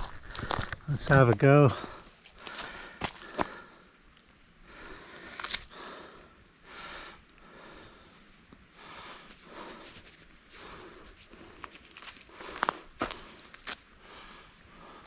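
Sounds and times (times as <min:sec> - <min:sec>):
twig snap: 0:05.2 - 0:05.7.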